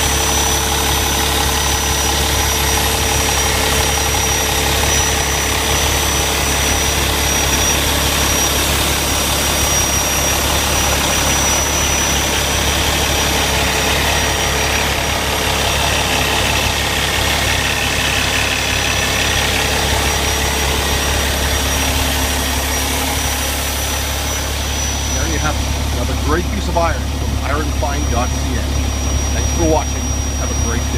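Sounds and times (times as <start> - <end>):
diesel truck engine idling: 0.0 - 30.9.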